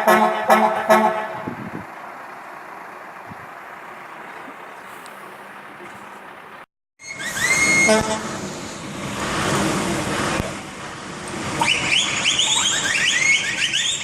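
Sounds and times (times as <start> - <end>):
vehicle horns honking: 0.0 - 1.7, 7.3 - 8.5
vehicles running: 0.0 - 14.0.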